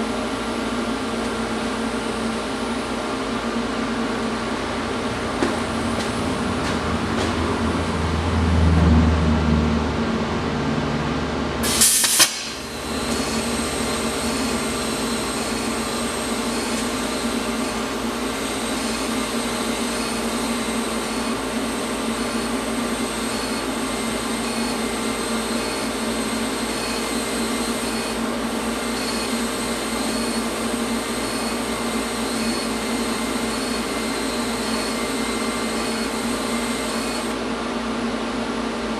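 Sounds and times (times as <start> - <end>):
shop machine humming: 0.0 - 38.9
short sharp burst: 11.6 - 12.8.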